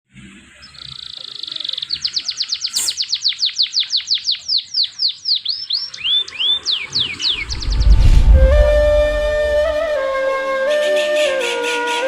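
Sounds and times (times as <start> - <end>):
bird singing whistled trill: 0.9 - 7.4.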